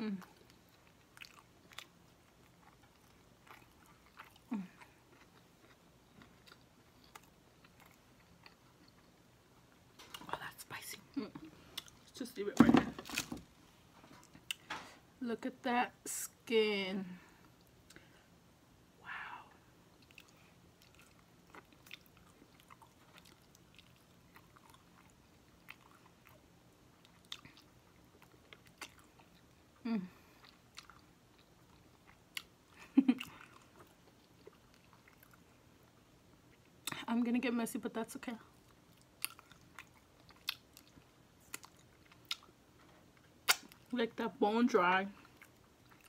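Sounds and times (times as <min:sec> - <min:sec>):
wet chewing with mouth clicks: 0:00.1 - 0:10.3, 0:11.3 - 0:12.1, 0:19.9 - 0:29.6, 0:30.2 - 0:37.1, 0:38.5 - 0:44.0, 0:45.2 - 0:46.0
chewing chicken skin: 0:38.7 - 0:43.9
wet mouth clicks: 0:43.5 - 0:43.8.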